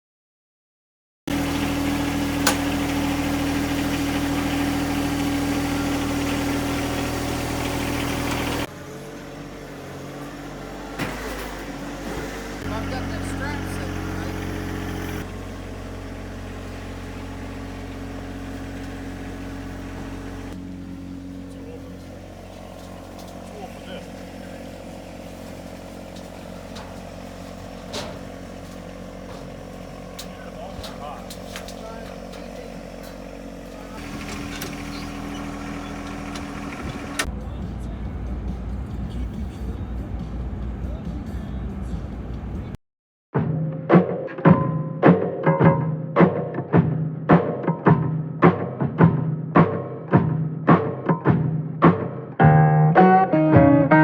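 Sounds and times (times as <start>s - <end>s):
engine idling: 1.3s - 42.8s.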